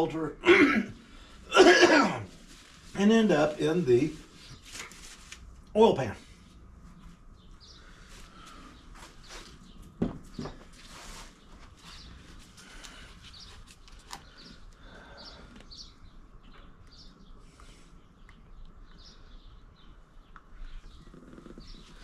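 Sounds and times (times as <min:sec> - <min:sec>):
low steady background hum: 0:00.0 - 0:22.0
small birds chirping: 0:02.4 - 0:04.9, 0:05.7 - 0:22.0.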